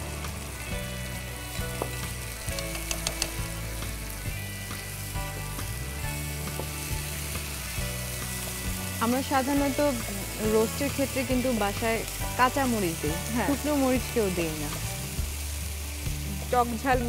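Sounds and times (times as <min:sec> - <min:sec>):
paste sizzling in oil: 0:00.0 - 0:17.0
spatula clicking against pan: 0:02.4 - 0:03.5.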